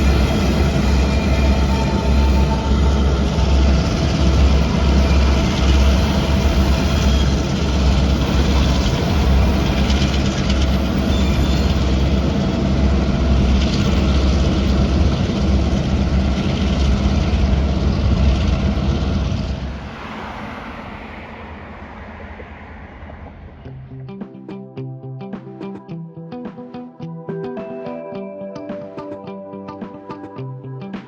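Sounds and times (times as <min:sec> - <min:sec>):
train wheels rumbling on rails: 0:00.0 - 0:23.9.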